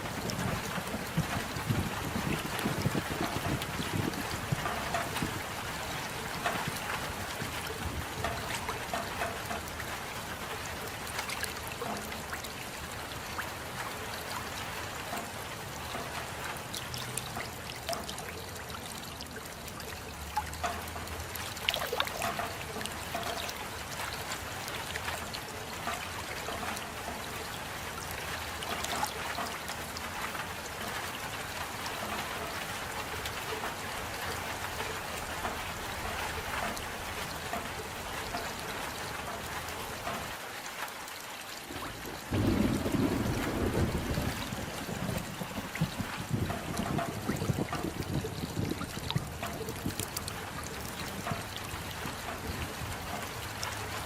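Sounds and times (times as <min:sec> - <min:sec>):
close drips and patters: 0:00.0 - 0:54.0
steady rain falling: 0:00.0 - 0:54.0.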